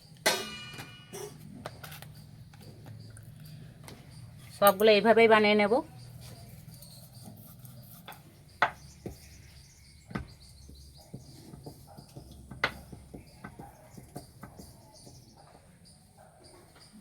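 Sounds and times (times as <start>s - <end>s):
utensils knocking on rolling board: 10.0s - 15.3s.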